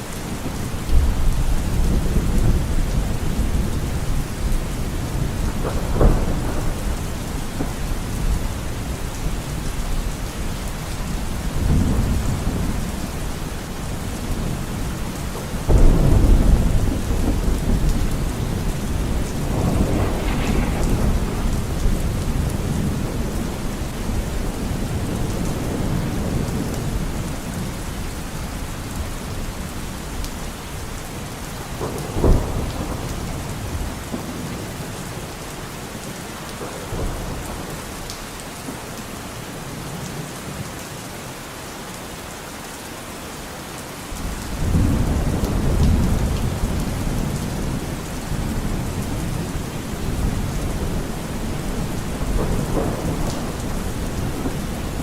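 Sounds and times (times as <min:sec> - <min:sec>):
rain falling in forest: 0:00.0 - 0:55.0
low thunder rumble: 0:00.1 - 0:35.2, 0:44.2 - 0:55.0
sharp thunder clap: 0:05.2 - 0:08.7, 0:15.6 - 0:26.5.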